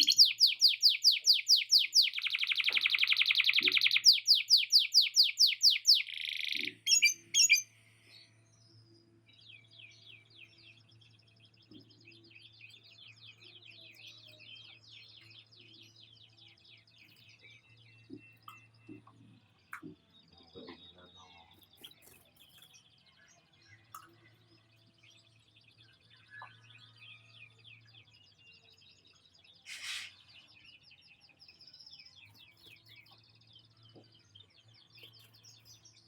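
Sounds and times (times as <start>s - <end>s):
canary singing: 0.0s - 7.8s.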